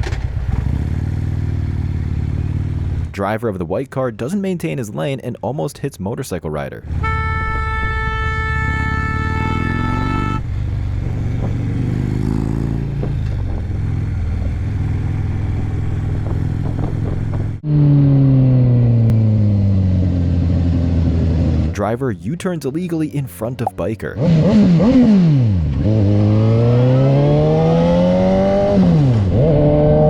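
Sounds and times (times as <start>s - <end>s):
motorcycle engine running: 0.1s - 3.2s, 8.3s - 21.8s
vehicle horn: 7.0s - 10.5s.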